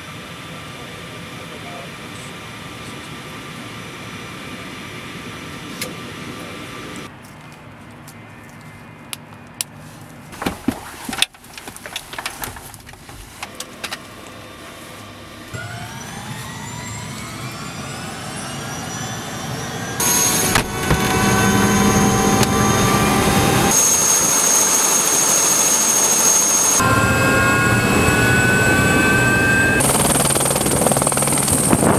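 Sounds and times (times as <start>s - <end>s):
helicopter turbine whine: 0.0s - 7.1s, 14.3s - 31.9s.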